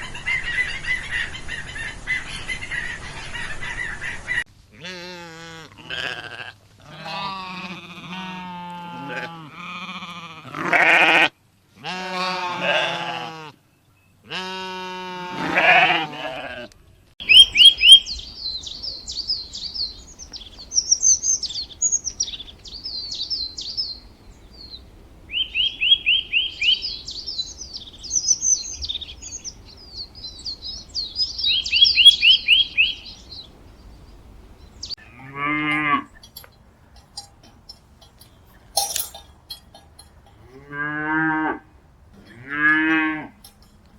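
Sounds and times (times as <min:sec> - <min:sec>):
animal bleats: 0:04.7 - 0:13.6, 0:14.2 - 0:16.8, 0:35.0 - 0:36.3, 0:40.4 - 0:43.6
small birds chirping: 0:17.2 - 0:35.1, 0:35.8 - 0:40.5.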